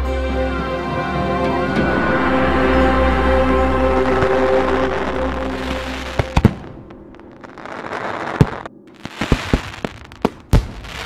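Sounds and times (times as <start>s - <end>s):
fireworks bangs: 4.2s - 11.0s
fireworks crackling and hiss: 7.4s - 11.0s.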